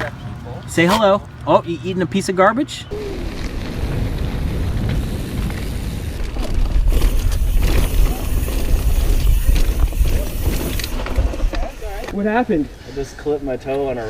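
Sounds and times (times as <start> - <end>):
wind rumble on microphone: 2.9 - 12.1
bike tyre and frame rattle: 3.0 - 12.4.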